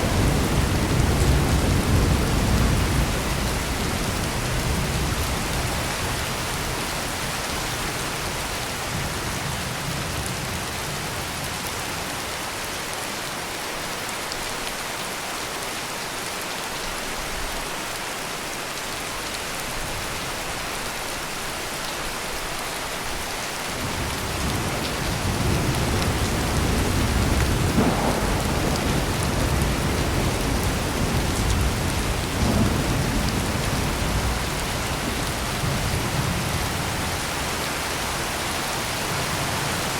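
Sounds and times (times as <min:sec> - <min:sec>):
low rolling thunder: 0:00.0 - 0:11.2, 0:23.8 - 0:38.3
heavy rain pouring: 0:00.0 - 0:39.9.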